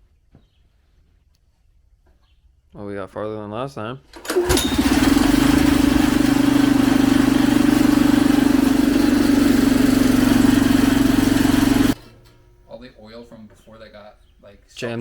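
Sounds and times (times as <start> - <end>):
mini-bike engine running loudly: 4.2 - 12.0.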